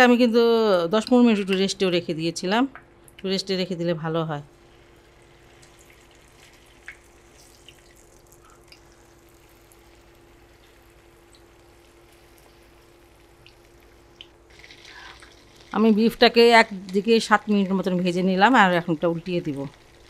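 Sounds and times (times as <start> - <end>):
meat sizzling in oil: 4.6 - 20.0.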